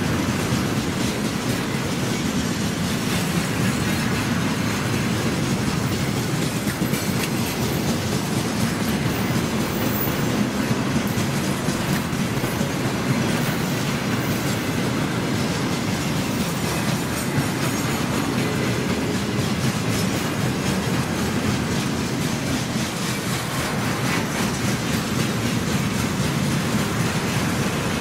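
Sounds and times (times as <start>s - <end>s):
train wheels rumbling on rails: 0.0s - 28.0s
wheel clacks: 0.0s - 28.0s.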